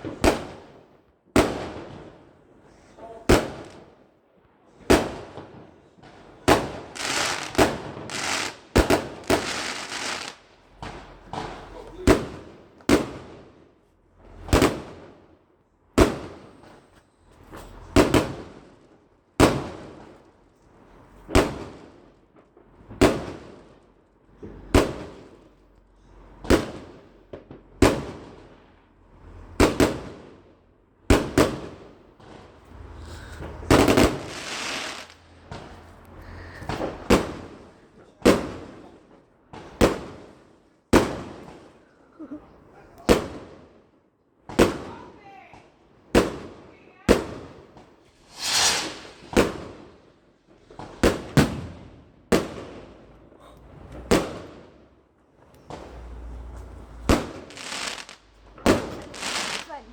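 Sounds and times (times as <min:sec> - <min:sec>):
fireworks bangs: 0:00.0 - 0:02.2, 0:03.2 - 0:03.9, 0:04.8 - 0:13.6, 0:14.2 - 0:15.2, 0:16.0 - 0:16.8, 0:17.5 - 0:18.8, 0:19.4 - 0:20.2, 0:21.1 - 0:23.7, 0:24.4 - 0:25.5, 0:26.3 - 0:28.6, 0:29.2 - 0:30.4, 0:31.1 - 0:41.8, 0:42.6 - 0:43.7, 0:44.4 - 0:45.4, 0:46.1 - 0:53.0, 0:53.7 - 0:59.9
fireworks crackling hiss: 0:06.1 - 0:13.3, 0:31.1 - 0:38.9, 0:46.2 - 0:52.8, 0:55.5 - 0:59.9.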